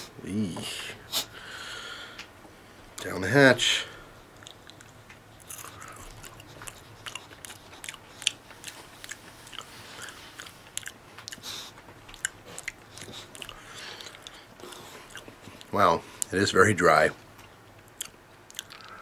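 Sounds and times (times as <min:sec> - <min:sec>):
person chewing crunchy insects: 0:04.2 - 0:16.3, 0:17.3 - 0:19.0.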